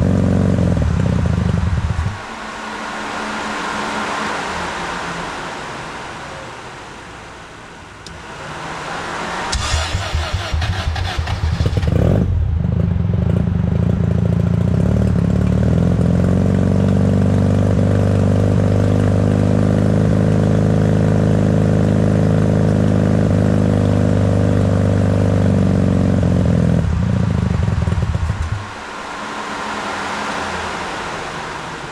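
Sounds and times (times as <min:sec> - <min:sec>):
whir: 0:08.0 - 0:12.5
rotary engine starting and running: 0:08.1 - 0:16.4.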